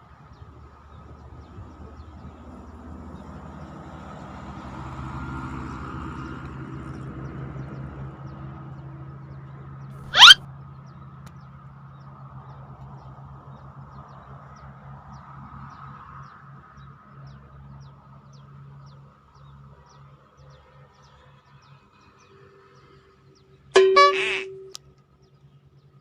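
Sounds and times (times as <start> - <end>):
small birds chirping: 10.1 - 10.4.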